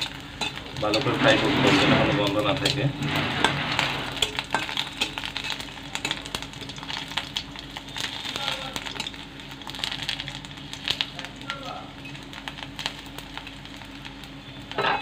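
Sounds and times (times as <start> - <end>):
dried fish sizzling in hot oil: 0.0 - 15.0
metal spatula scraping pan: 0.4 - 6.2.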